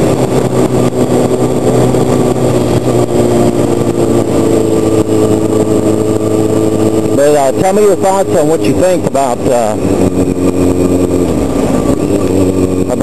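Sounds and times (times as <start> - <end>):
motorcycle engine under throttle: 0.0 - 13.0.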